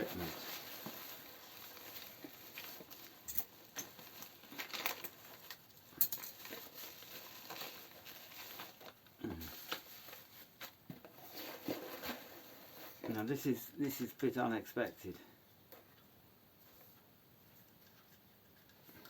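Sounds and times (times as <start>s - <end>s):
packaging crinkling and rustling: 0.0s - 14.1s.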